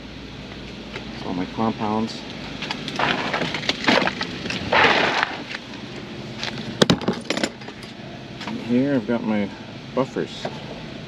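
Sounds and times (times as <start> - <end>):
scraping rush: 4.6 - 5.5
gear rustling and clattering: 6.4 - 8.6.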